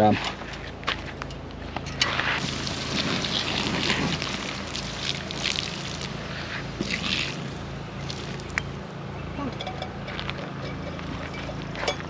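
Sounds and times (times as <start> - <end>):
water sloshing and splashing: 2.4 - 8.8.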